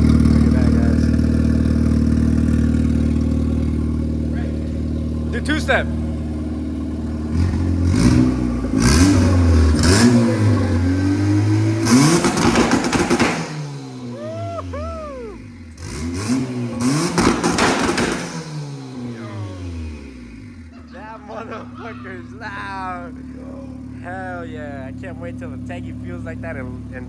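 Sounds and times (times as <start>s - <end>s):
exhaust pops and bangs: 0.0s - 14.1s, 16.4s - 19.2s
car engine revving: 0.0s - 27.0s.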